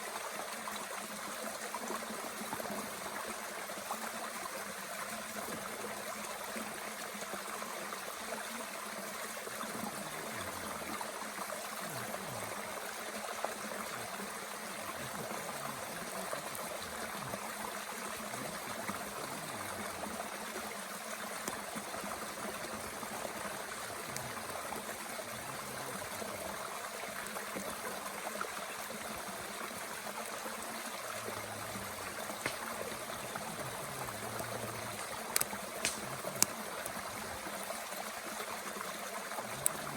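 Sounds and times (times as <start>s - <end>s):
mountain stream running: 0.0s - 39.9s
faint wood fire pops: 21.4s - 21.7s, 32.1s - 37.1s.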